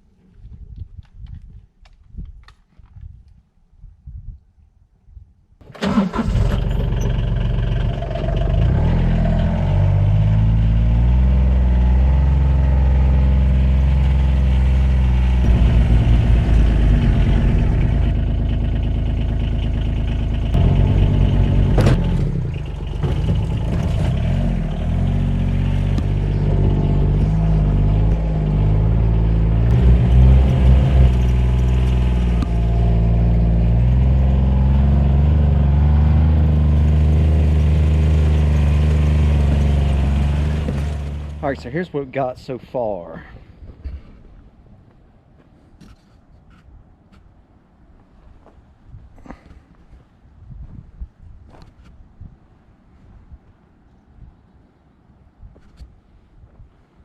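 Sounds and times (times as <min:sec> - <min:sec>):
engine running: 0:05.6 - 0:41.9.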